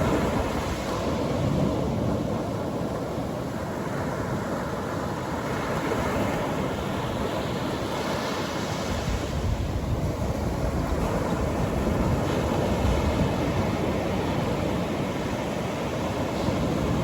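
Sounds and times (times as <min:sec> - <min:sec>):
surf washing up a beach: 0:00.0 - 0:17.0
wind buffeting microphone: 0:05.5 - 0:17.0.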